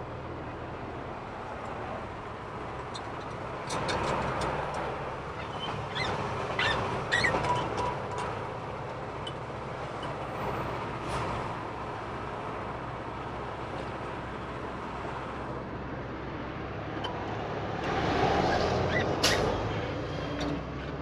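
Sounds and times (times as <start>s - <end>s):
truck engine and road rumble: 0.0s - 21.0s
short high squeaks: 5.4s - 8.2s, 18.4s - 19.6s.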